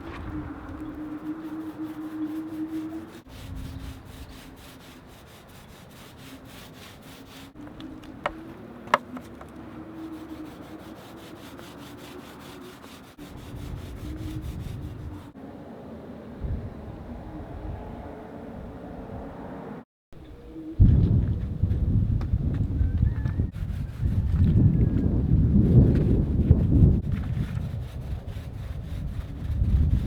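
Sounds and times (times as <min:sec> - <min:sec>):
power sander on boat hull: 0:00.0 - 0:15.4, 0:25.6 - 0:30.0.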